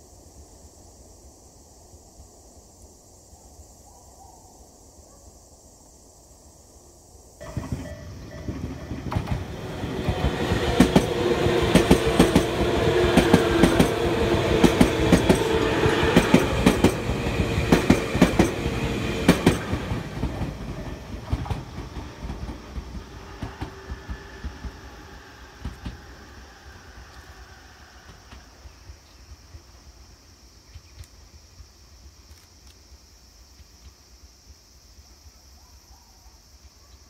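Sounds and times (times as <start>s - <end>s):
wheels clicking over rail joints: 7.4s - 24.8s
train passing at speed: 7.4s - 30.4s.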